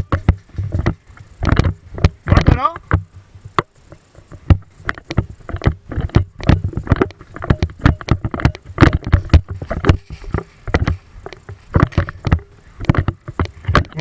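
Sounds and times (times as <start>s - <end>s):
hurried footsteps: 0.0s - 14.0s
gear knocking: 4.4s - 14.0s.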